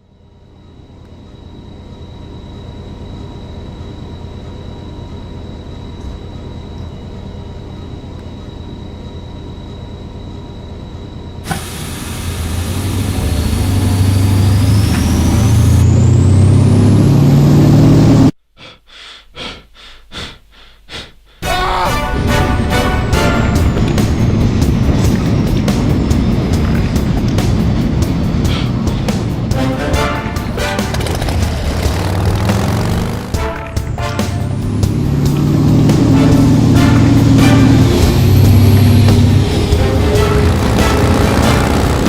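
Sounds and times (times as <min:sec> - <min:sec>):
rising whine: 0:00.0 - 0:18.4, 0:21.4 - 0:42.0
harsh bright engine layer: 0:11.4 - 0:18.4, 0:21.9 - 0:42.0
vehicle rumble: 0:11.5 - 0:18.4, 0:22.8 - 0:42.0
short pulses: 0:29.6 - 0:42.0.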